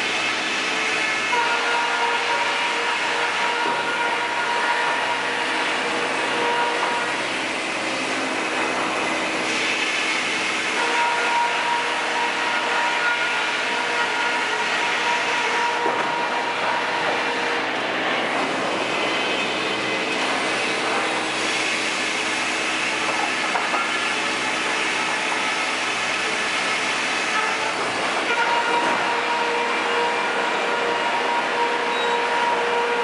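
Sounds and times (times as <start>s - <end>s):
sawmill machinery whining: 0.0s - 33.0s.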